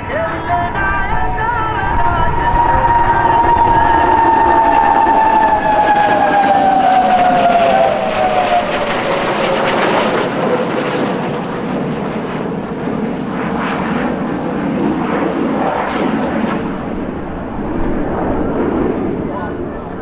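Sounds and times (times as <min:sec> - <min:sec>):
high whine falling in pitch: 0:00.0 - 0:09.9
jet engine rushing: 0:00.0 - 0:20.0.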